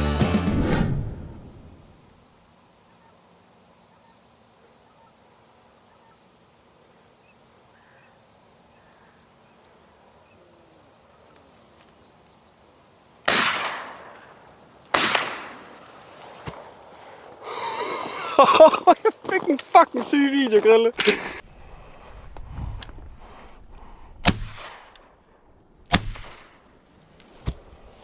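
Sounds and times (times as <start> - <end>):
faint bird chirps: 2.6 - 12.8
shotgun shots: 13.3 - 15.8, 24.2 - 25.0, 25.9 - 26.6.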